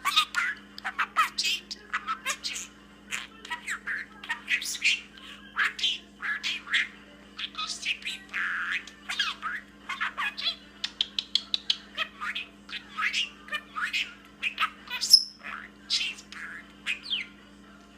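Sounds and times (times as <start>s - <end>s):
budgerigar chattering and warbling: 0.0s - 17.4s.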